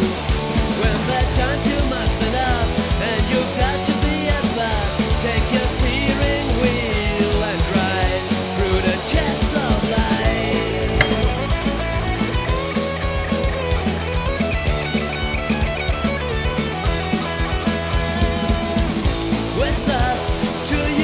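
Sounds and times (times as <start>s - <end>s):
drums: 0.0s - 10.2s, 15.2s - 21.0s
guitar: 0.0s - 21.0s.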